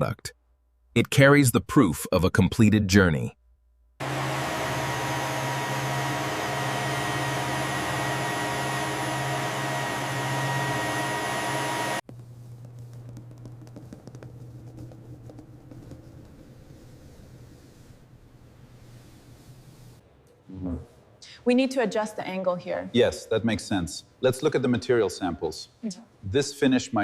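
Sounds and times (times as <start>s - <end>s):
machine whooshing and humming: 4.0s - 20.0s.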